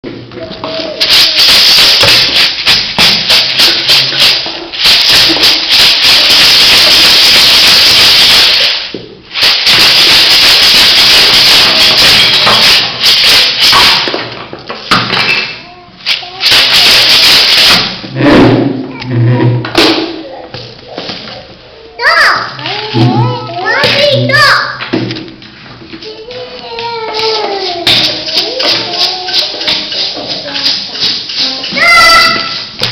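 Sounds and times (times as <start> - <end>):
hand shaker rattling: 0.6 - 18.1, 26.1 - 32.9.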